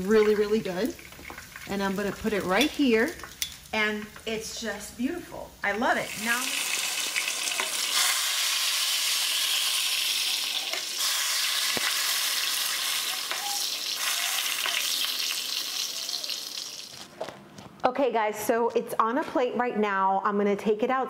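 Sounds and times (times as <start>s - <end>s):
meat sizzling in oil: 0.0s - 3.8s, 5.9s - 17.0s.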